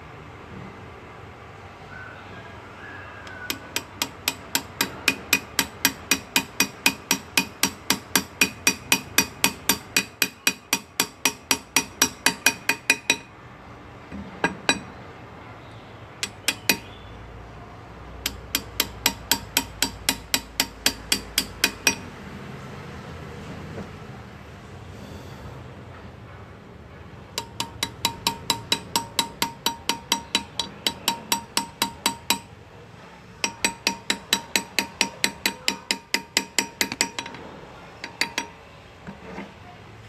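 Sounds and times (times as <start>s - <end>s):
hammer tapping chisel into metal: 3.2s - 13.3s, 14.1s - 15.0s, 16.2s - 17.0s, 18.2s - 22.1s, 27.4s - 32.5s, 33.4s - 39.5s.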